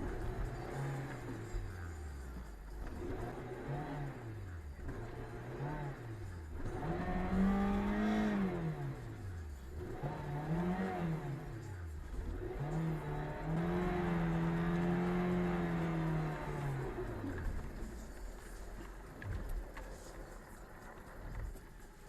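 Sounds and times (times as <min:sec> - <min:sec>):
car engine revving while driving: 0:00.0 - 0:20.1.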